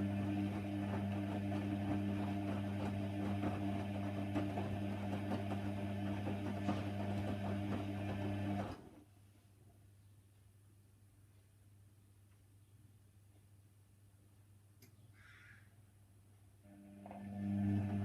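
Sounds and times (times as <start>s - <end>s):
washer dryer humming: 0.0s - 8.8s, 16.7s - 18.0s.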